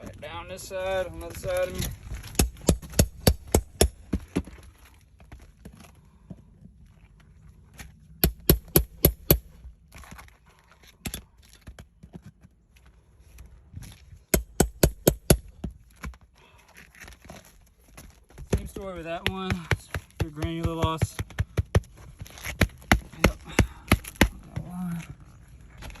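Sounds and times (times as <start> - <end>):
sharp taps on roof shingles: 18.0 - 24.7.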